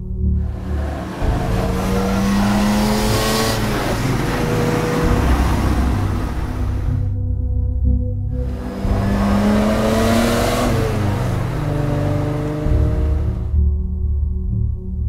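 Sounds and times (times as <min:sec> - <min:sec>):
rush of noise: 0:00.4 - 0:07.1, 0:08.4 - 0:13.6
car engine revving under load: 0:00.4 - 0:07.2, 0:08.3 - 0:13.6.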